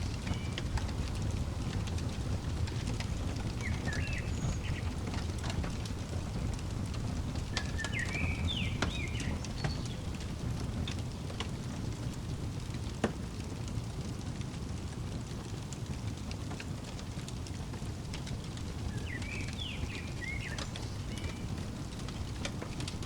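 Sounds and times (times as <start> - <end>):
fireplace fire crackling: 0.0 - 23.0
low fire rumble: 0.0 - 23.0
sharp fire pops: 0.0 - 23.0
bird chirps: 3.6 - 5.0, 7.5 - 10.0, 18.9 - 21.6.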